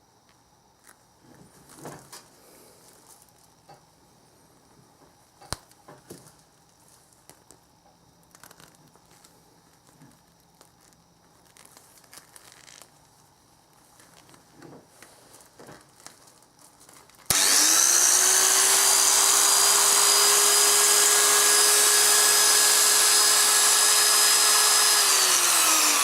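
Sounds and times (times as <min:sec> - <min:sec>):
faint rustling and crinkling: 0:00.2 - 0:03.8, 0:04.4 - 0:17.3.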